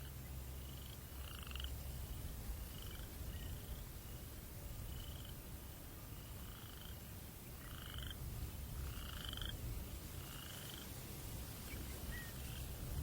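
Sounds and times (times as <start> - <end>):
frog trilling: 0.0 - 1.9, 2.6 - 3.8, 4.9 - 5.4, 6.1 - 8.2, 8.8 - 9.6, 10.2 - 10.9
low rumble of breeze: 0.0 - 13.0.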